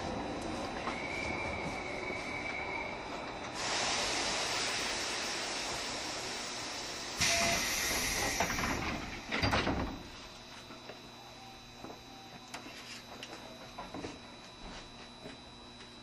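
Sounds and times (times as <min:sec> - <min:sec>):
compressed air hissing: 0:03.6 - 0:09.2.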